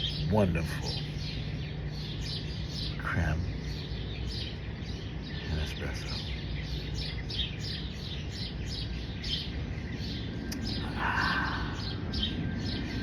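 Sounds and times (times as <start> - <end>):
low outdoor rumble: 0.0 - 13.0
small birds chirping: 0.0 - 13.0.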